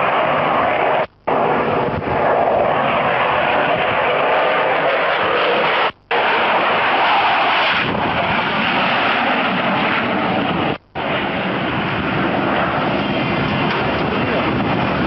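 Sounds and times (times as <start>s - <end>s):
aircraft engine rushing: 0.0s - 15.0s.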